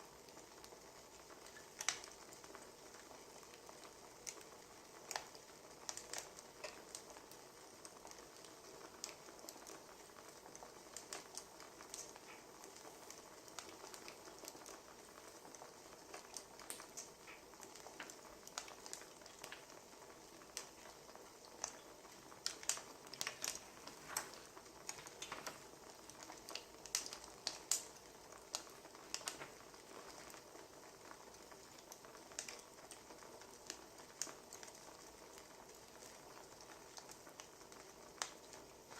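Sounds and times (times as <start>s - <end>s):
soft steady hiss: 0.0s - 38.9s
wood fire pops and snaps: 0.3s - 38.9s.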